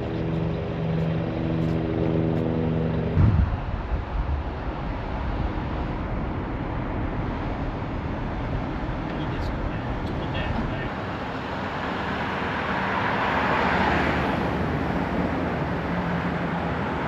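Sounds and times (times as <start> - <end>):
vehicle humming: 0.0 - 17.0
even rumbling noise: 2.9 - 10.9
loud thump: 3.2 - 4.6.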